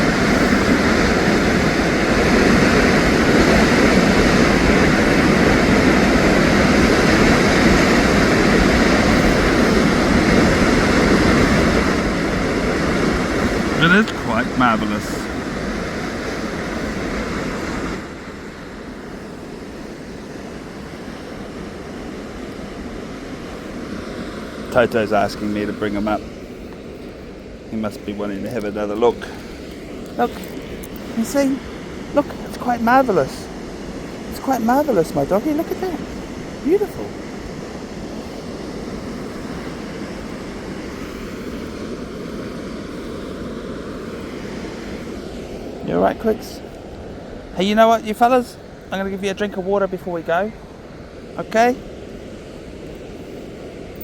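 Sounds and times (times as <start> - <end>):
rushing water: 0.0 - 54.0.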